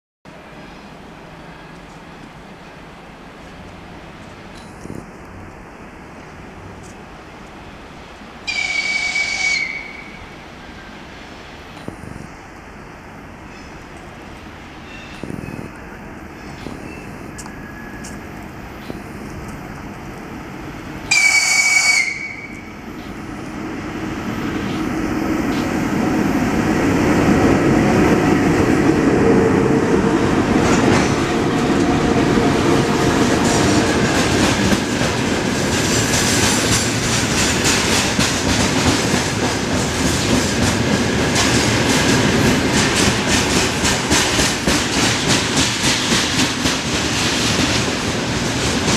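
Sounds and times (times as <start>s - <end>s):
train rumbling past: 0.3s - 48.9s
locomotive whistle: 8.5s - 10.3s, 21.1s - 22.8s.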